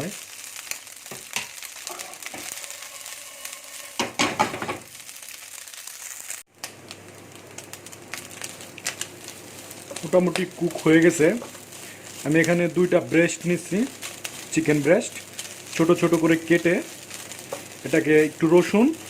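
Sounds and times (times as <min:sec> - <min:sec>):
chicken sizzling in a pan: 0:00.0 - 0:19.0
stirring scrapes against pan: 0:01.4 - 0:04.3.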